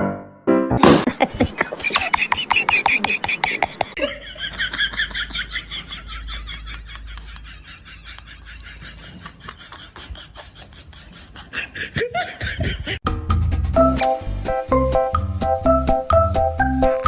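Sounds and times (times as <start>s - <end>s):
upbeat music with steady beat: 13.0s - 17.0s.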